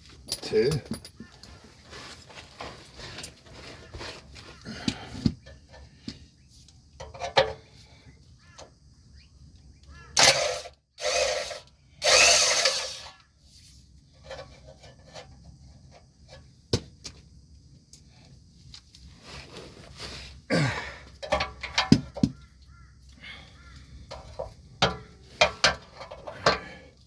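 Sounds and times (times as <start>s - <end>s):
loud bursts of tool noise: 10.2s - 13.1s.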